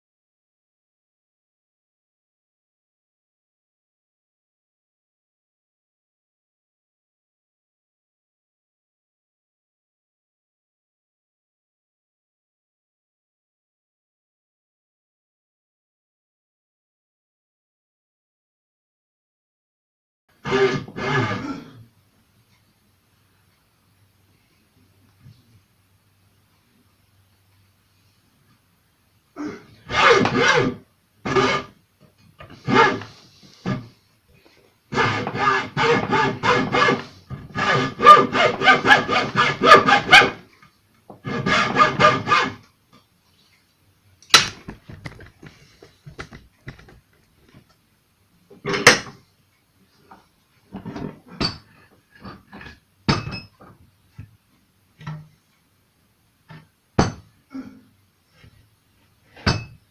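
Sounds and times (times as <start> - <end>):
rhythmic rubbing strokes on wood: 20.4 - 21.4, 32.6 - 34.0, 34.9 - 40.4, 41.2 - 42.6.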